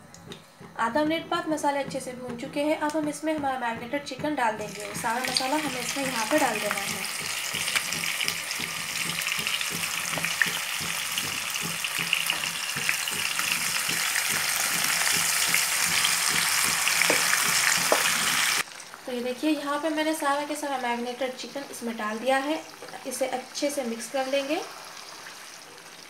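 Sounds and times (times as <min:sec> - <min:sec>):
chicken sizzling in hot oil: 0:04.6 - 0:26.0
spatula ticking on pan: 0:05.0 - 0:18.0.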